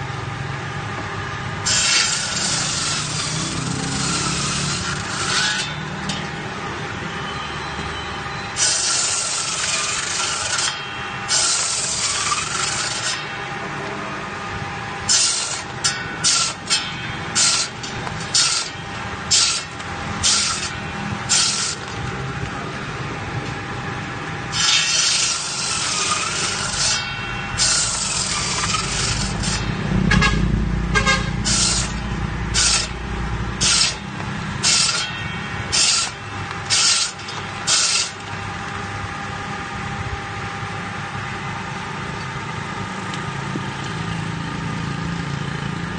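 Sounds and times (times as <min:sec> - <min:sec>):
stone-cutting machine humming: 0:00.0 - 0:45.9.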